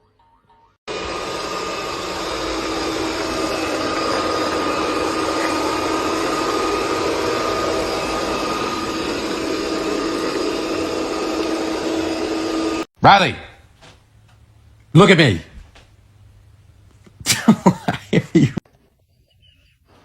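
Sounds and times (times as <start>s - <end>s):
appliance motor and fan whirring: 0.9s - 12.9s.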